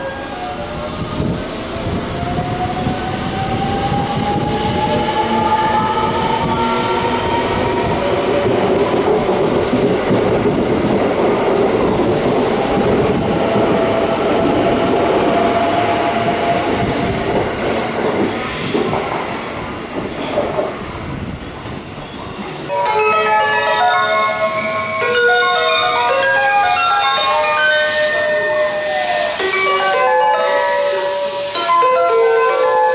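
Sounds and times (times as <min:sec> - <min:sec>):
station chime melody: 0:22.7 - 0:32.9.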